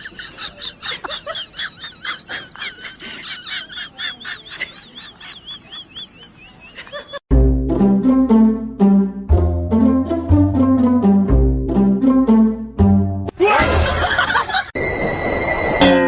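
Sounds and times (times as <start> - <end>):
animal chirping with trills: 4.6 - 7.2.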